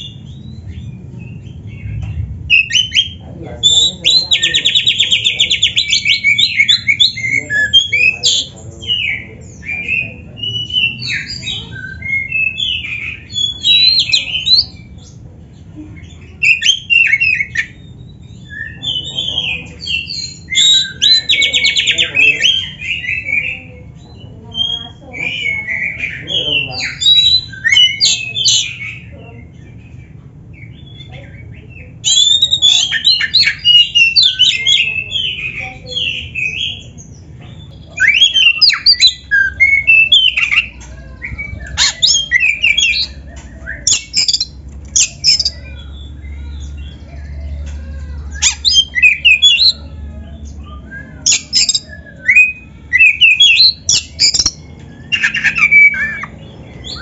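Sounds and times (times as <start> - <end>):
bird singing whistled phrases: 16.4 - 23.5, 24.2 - 29.1, 30.6 - 36.9, 37.8 - 47.0, 48.3 - 57.0.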